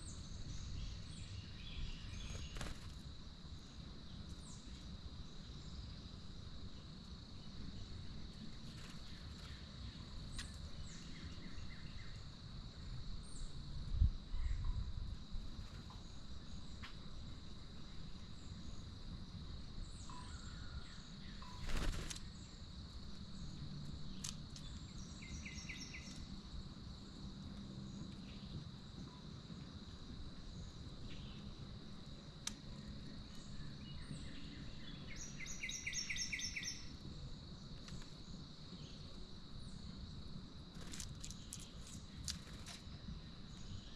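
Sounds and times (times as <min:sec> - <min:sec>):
insect drone: 0:00.0 - 0:43.9
bird chirps: 0:23.5 - 0:26.2, 0:33.3 - 0:36.9.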